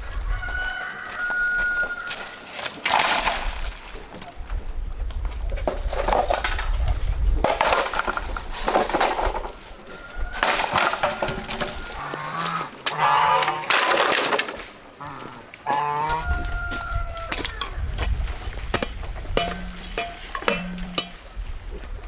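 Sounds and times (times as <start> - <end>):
wavering fowl calls: 9.8 - 13.8, 14.9 - 17.8.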